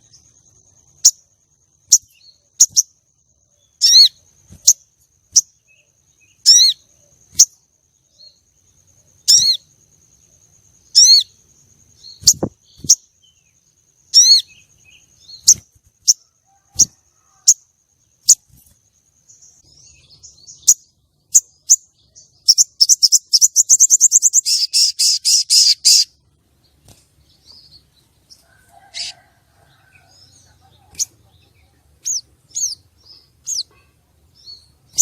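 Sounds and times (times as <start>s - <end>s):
bird chirping and trilling: 1.8s - 3.0s, 3.6s - 7.6s, 9.2s - 9.7s, 10.8s - 11.4s, 12.0s - 13.4s, 14.1s - 17.6s, 19.4s - 26.2s, 27.3s - 35.0s.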